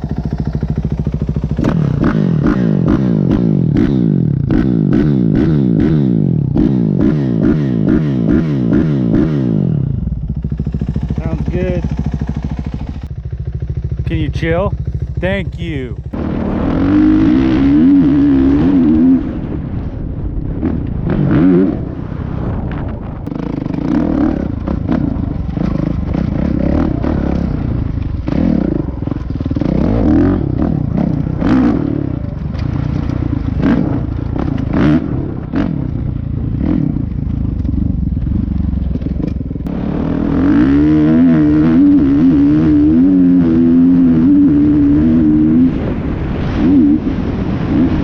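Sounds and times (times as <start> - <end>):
dirt bike engine running: 0.0 - 48.0.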